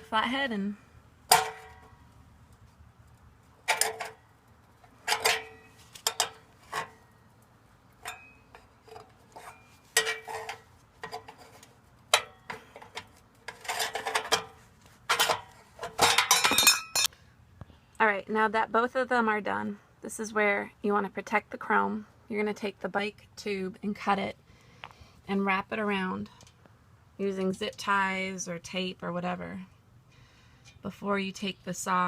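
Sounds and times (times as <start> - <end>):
screwdriver clinking on metal: 15.1 - 17.1.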